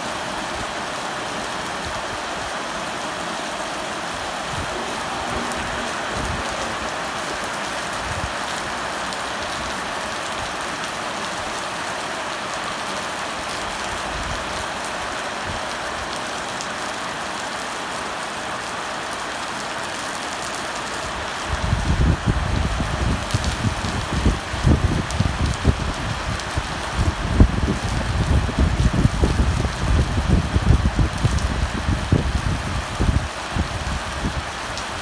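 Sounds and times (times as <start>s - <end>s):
heavy rain downpour: 0.0s - 35.0s
loud low rumble: 4.3s - 8.2s.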